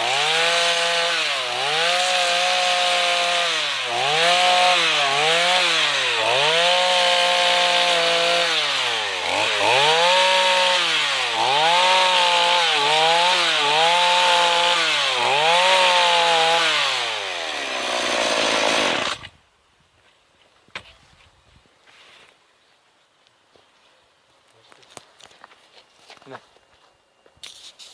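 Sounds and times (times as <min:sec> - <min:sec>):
chainsaw running at high revs: 0:00.0 - 0:19.3.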